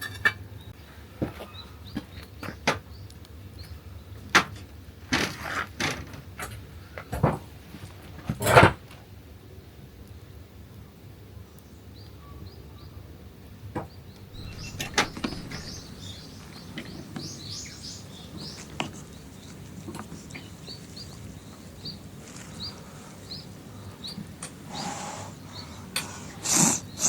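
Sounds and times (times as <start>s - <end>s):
small birds chirping: 11.4s - 27.0s
low steady outdoor hiss: 14.1s - 27.0s
sharp cracks or knocks: 14.3s - 17.6s.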